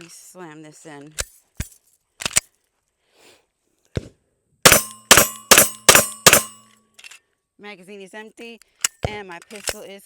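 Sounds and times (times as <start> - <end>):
pistol handling clicks: 2.2 - 2.5, 4.7 - 7.2
rapid pistol shots: 4.7 - 6.6
metallic ringing of steel targets: 4.7 - 6.7.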